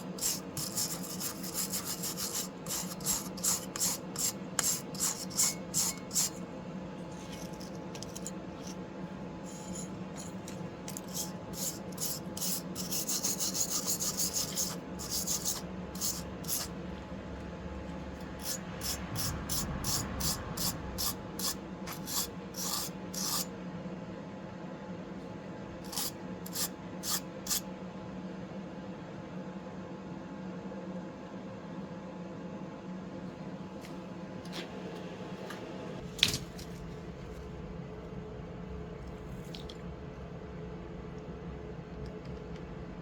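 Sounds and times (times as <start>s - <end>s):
hand scraping steel: 0.0s - 6.4s, 7.0s - 8.8s, 9.4s - 16.7s
steady low hum: 0.0s - 43.0s.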